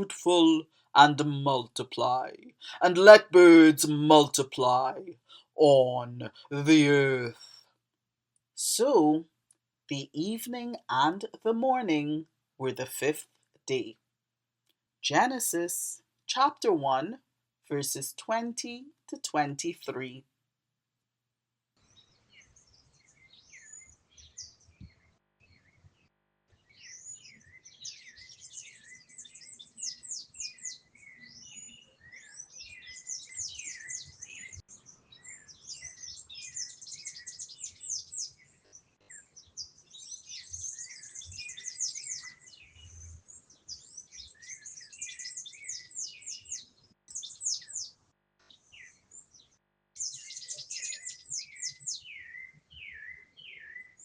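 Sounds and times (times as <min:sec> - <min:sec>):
small birds chirping: 0:21.8 - 0:54.0.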